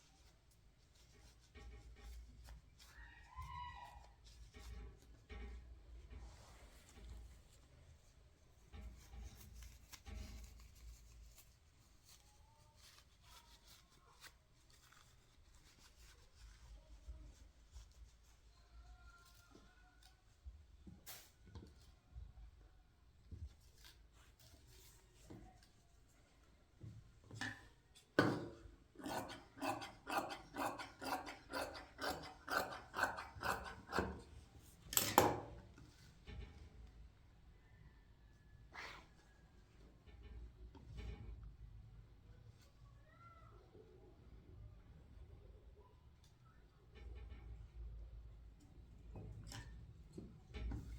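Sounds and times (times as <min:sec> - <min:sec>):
faint clicks and rustles: 0:00.0 - 0:28.2
rasping scraping strokes: 0:29.0 - 0:34.4.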